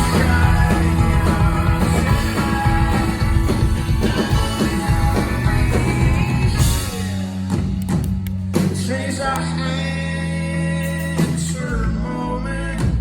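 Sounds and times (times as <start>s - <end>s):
rock band playing: 0.0s - 9.6s.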